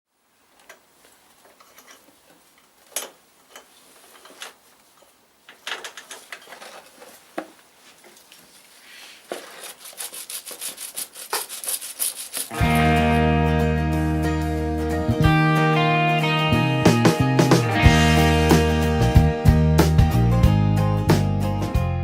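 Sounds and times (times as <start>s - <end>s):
objects clicking and knocking: 9.3s - 12.9s.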